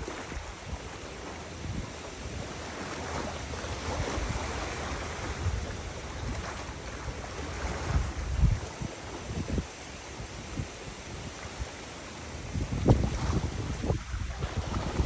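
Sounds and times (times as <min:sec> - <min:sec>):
river water rushing: 0:00.0 - 0:15.0
wind buffeting microphone: 0:00.0 - 0:15.0.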